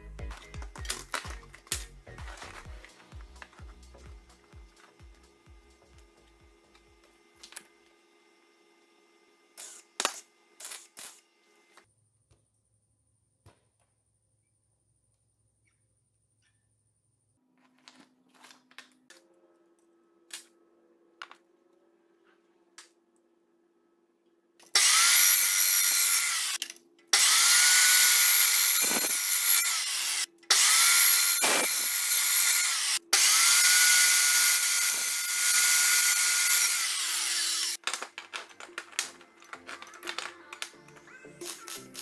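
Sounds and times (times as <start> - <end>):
small electric motor whining: 24.6 - 37.8.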